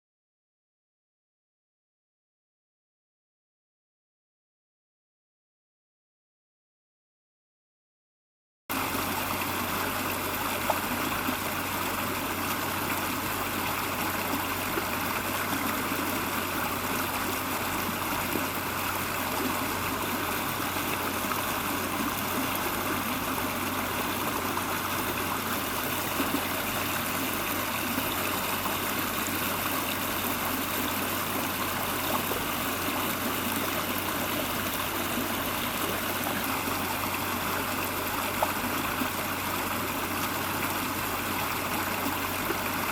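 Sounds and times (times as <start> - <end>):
stream flowing: 8.7 - 42.9.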